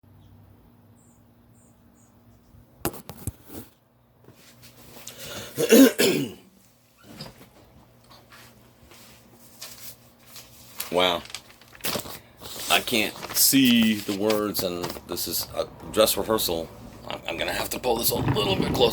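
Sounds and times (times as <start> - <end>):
person clearing throat and coughing: 5.4 - 6.5.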